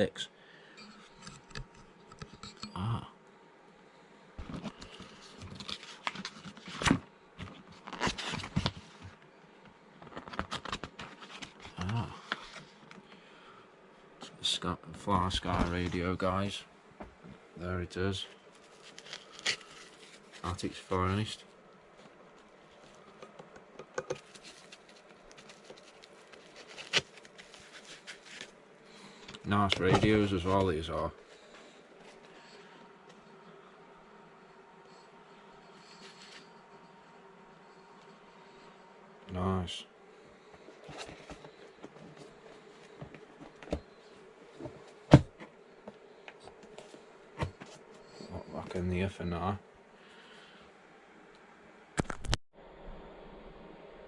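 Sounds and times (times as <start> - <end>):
packing material rustling: 18.4 - 20.6, 24.1 - 30.6.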